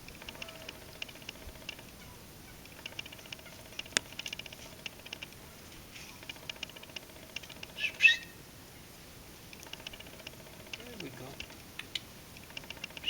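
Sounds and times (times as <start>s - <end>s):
small birds chipping: 0.0s - 13.0s
bird call with pitch glides: 7.8s - 8.4s.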